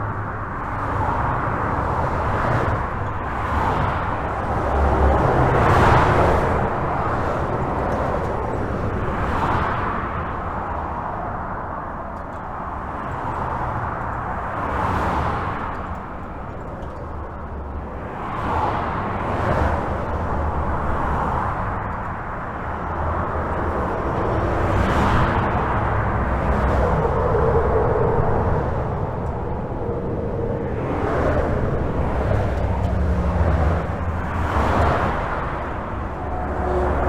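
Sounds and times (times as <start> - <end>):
highway traffic rushing: 0.0 - 37.0
deep rumble: 23.0 - 37.0.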